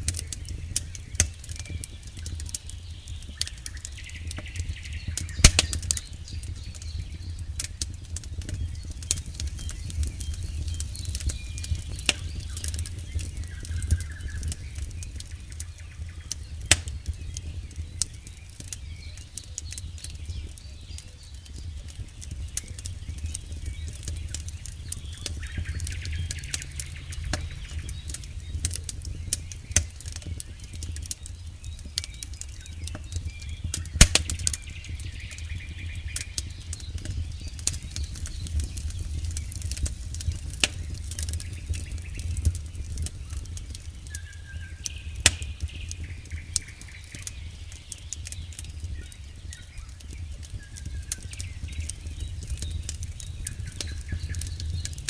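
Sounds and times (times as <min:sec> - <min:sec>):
campfire crackling: 0:00.0 - 0:55.0
fire popping: 0:00.0 - 0:55.0
low steady rumble: 0:00.0 - 0:55.0.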